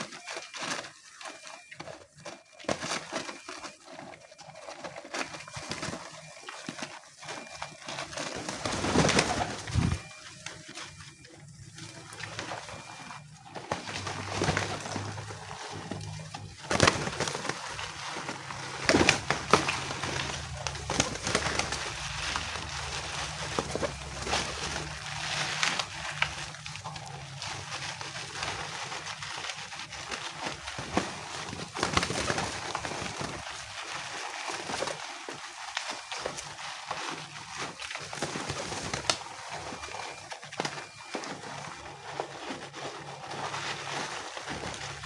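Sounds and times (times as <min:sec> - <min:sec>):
pigeons cooing: 0:11.6 - 0:27.7.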